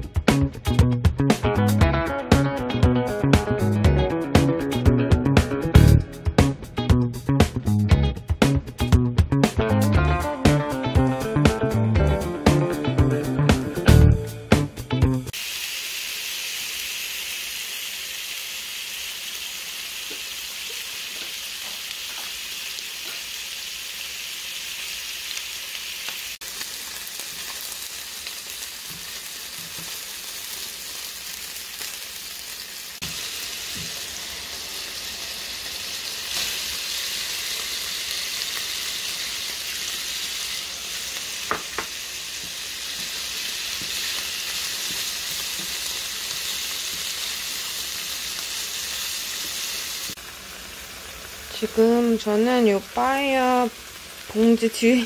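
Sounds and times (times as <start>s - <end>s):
chicken sizzling in oil: 15.0s - 55.0s.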